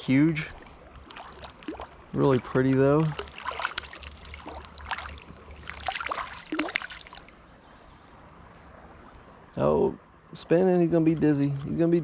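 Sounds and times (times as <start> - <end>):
water trickling: 0.0 - 7.4.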